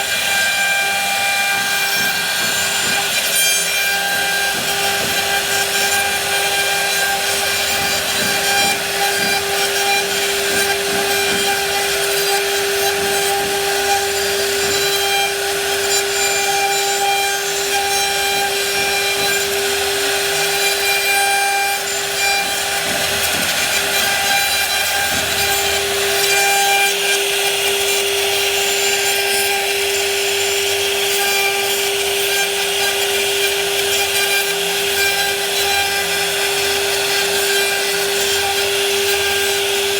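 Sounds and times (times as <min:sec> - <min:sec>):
power tool cutting wood: 0:00.0 - 0:39.9
scratchy rasping: 0:01.6 - 0:29.2.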